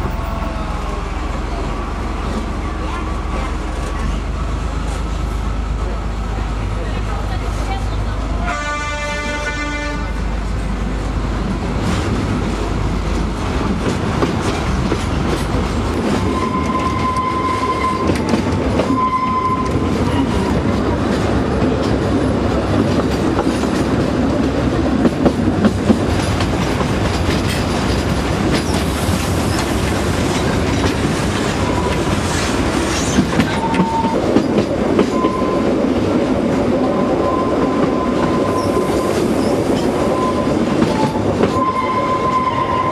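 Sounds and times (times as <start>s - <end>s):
train horn: 8.4s - 10.3s, 18.9s - 19.8s, 41.0s - 42.9s
train wheel clatter: 11.5s - 42.9s
wheel squeals: 16.1s - 20.4s.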